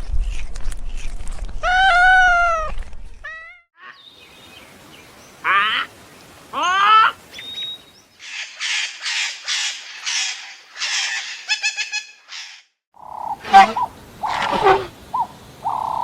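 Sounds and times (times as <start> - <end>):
bird harsh calls: 6.7 - 16.0
loud high-pitched bird call: 13.2 - 16.0.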